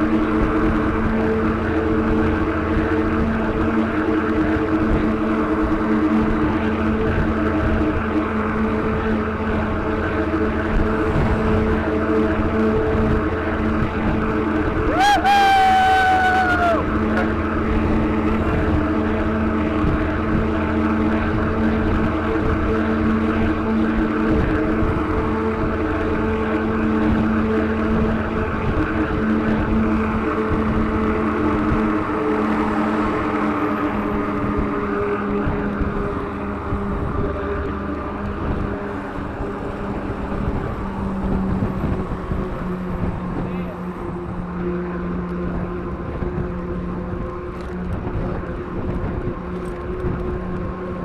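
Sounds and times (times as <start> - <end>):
road noise at speed: 0.0 - 51.0
vehicle drone: 0.0 - 51.0
wind rush: 0.0 - 51.0.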